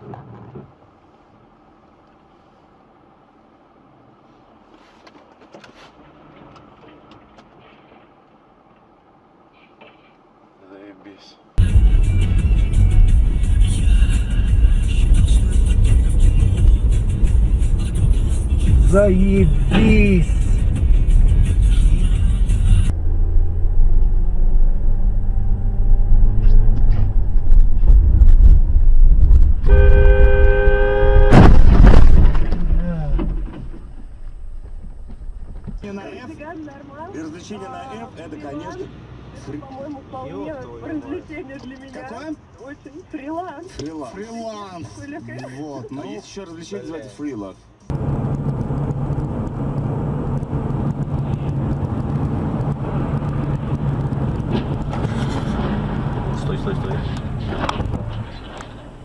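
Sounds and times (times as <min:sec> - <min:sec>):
car engine and road noise: 0:00.0 - 0:59.0
car horn blaring: 0:29.6 - 0:31.7
loud bang: 0:30.9 - 0:34.4.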